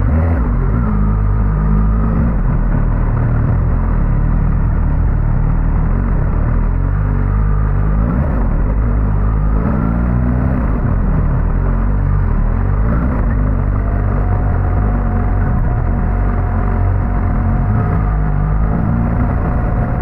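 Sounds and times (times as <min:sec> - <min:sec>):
motorcycle engine running: 0:00.0 - 0:20.0
road and wind noise: 0:00.0 - 0:20.0.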